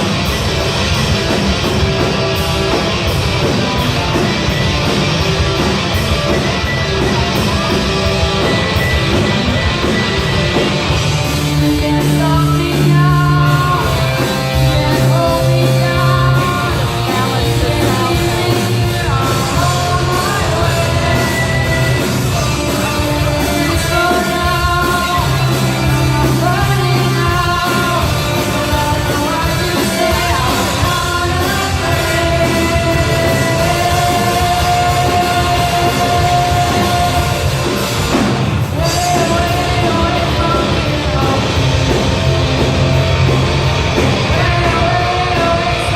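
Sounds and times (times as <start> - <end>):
rock band playing: 0.0 - 45.9
loud sung vocals: 11.5 - 41.9, 44.0 - 45.9.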